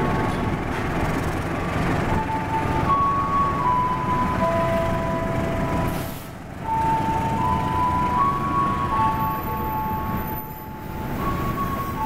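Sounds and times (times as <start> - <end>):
train wheels rumbling on rails: 0.0 - 12.0
high brake squeal: 5.8 - 7.6, 9.2 - 12.0.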